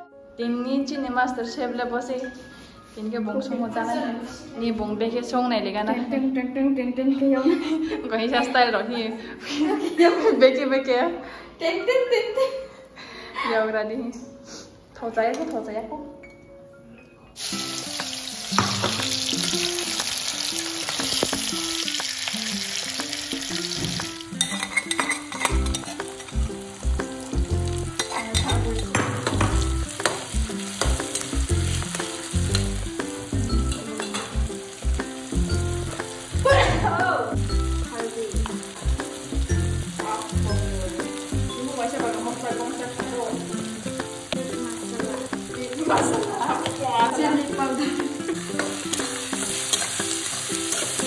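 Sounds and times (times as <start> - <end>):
onions sizzling in hot oil: 17.4 - 51.0
spatula scraping wok: 46.0 - 51.0.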